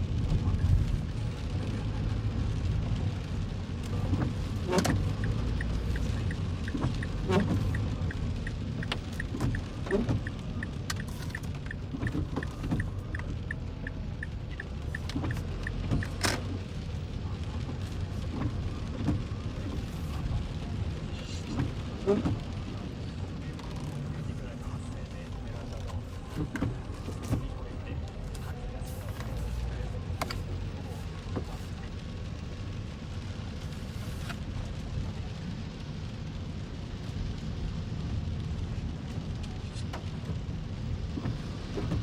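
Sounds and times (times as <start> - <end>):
road rumble inside car: 0.0 - 42.0
regular ticking: 4.9 - 16.2.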